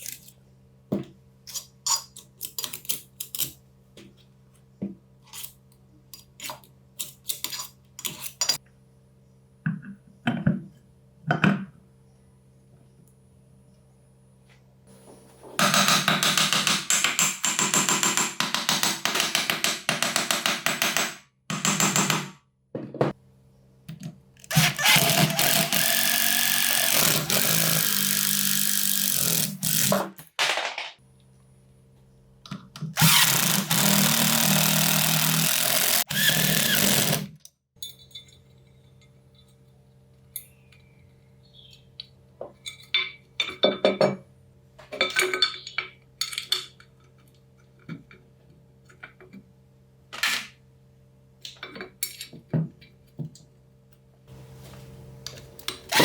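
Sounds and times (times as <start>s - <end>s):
electric power tool running: 24.5s - 30.0s, 33.0s - 37.3s.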